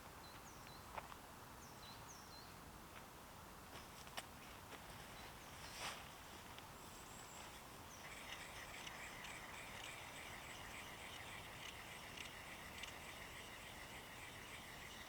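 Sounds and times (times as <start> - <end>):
quiet woodland background: 0.0 - 15.0
insect chirring: 7.9 - 15.0.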